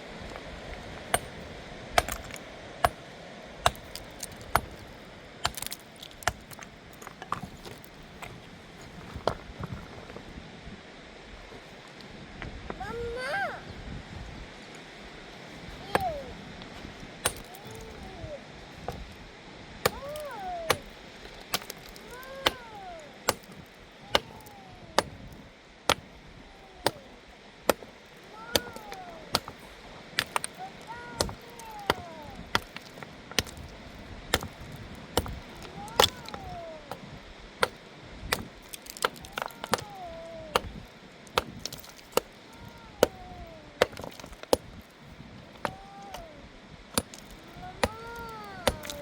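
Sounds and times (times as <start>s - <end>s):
hand tool chopping: 1.1s - 3.0s, 3.6s - 8.4s, 17.2s - 18.2s, 19.8s - 45.0s, 45.6s - 46.3s, 47.0s - 49.0s.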